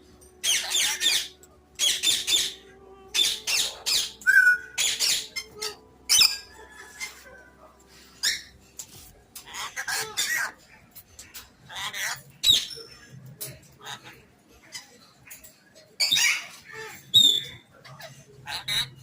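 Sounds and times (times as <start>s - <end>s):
parrot squawking: 0.4s - 7.3s, 9.4s - 10.6s, 11.7s - 12.9s, 16.0s - 19.0s.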